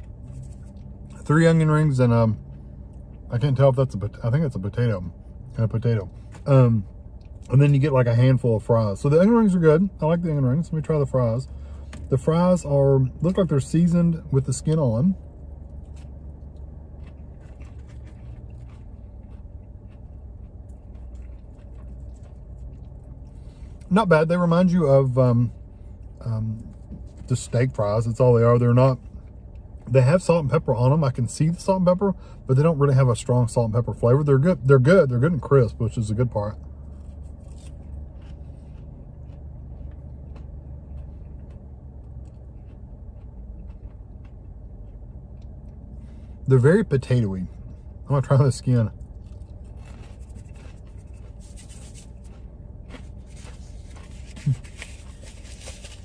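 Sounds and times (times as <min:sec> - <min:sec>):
low car cabin hum: 0:00.0 - 0:56.0
man chewing crunchy food: 0:14.6 - 0:23.9, 0:36.6 - 0:46.5, 0:48.7 - 0:56.0.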